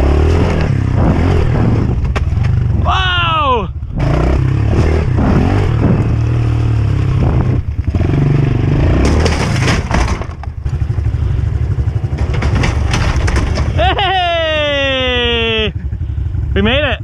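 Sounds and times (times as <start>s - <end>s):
pit bike engine revving: 0.0s - 9.8s.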